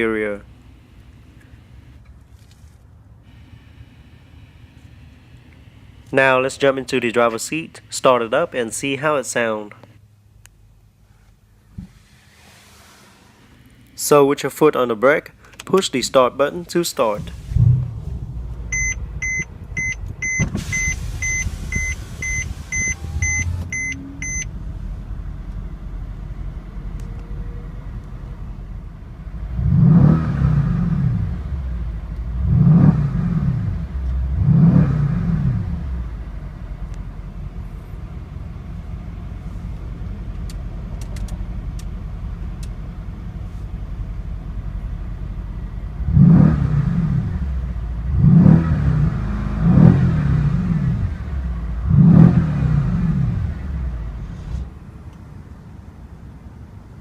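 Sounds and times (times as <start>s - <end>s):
car engine idling and revving: 0.0s - 6.1s, 16.7s - 57.0s
electronic chime beeping: 18.7s - 24.5s.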